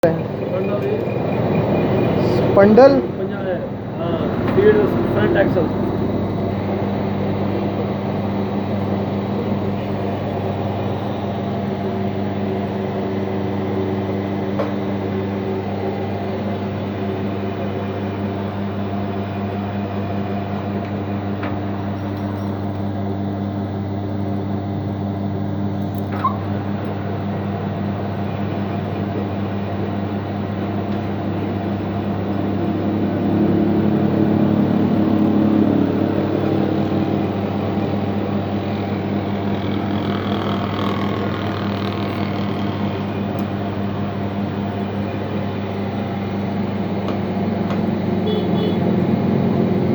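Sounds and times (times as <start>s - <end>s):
machine humming: 34.0s - 48.4s.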